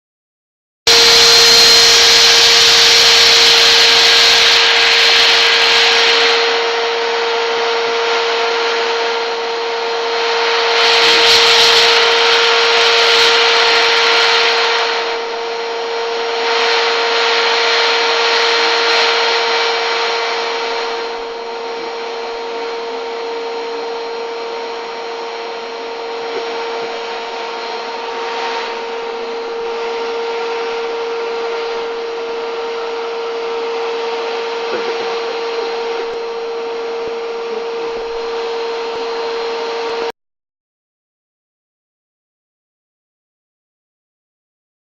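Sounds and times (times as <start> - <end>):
vacuum cleaner whine: 0.9 - 40.2
rushing hiss of air: 1.0 - 8.8, 10.2 - 23.0.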